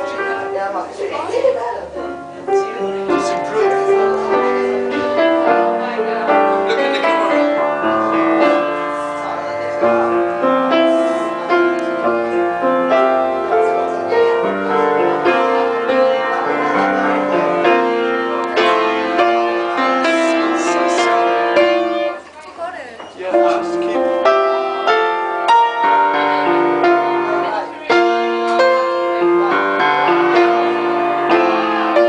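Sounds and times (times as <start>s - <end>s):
piano melody over chords: 0.0s - 22.2s, 23.2s - 32.0s.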